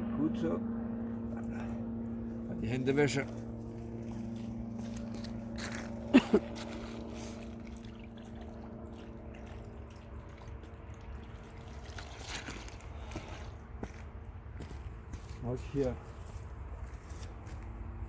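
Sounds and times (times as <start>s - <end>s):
low hum: 0.0s - 15.2s
water trickling over hands: 6.4s - 13.6s.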